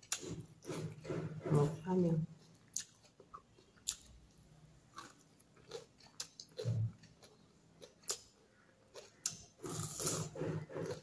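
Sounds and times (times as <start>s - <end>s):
person chewing: 0.0s - 1.4s, 2.4s - 11.0s.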